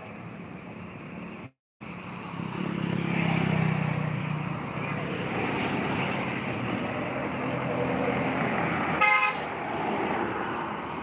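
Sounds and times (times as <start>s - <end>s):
road traffic noise: 0.0s - 11.0s
vehicle horn toot: 9.0s - 9.4s.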